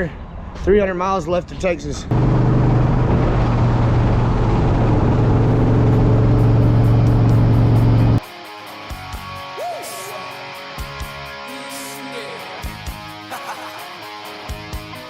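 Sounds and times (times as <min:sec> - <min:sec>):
road noise: 0:00.0 - 0:08.2
vehicle engine droning: 0:02.0 - 0:08.2.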